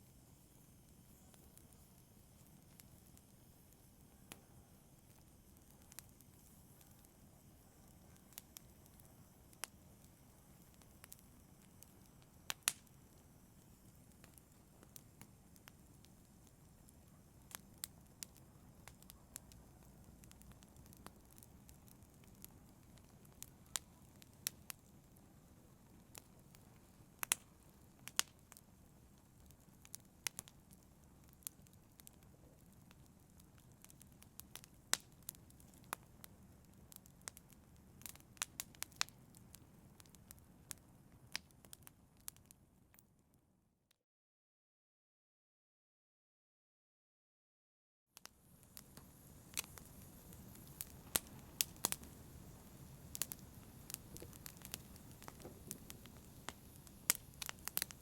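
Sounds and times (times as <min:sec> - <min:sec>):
wood fire crackling and popping: 0:00.1 - 0:42.6, 0:48.2 - 0:58.0
low rush of flame: 0:48.4 - 0:58.0.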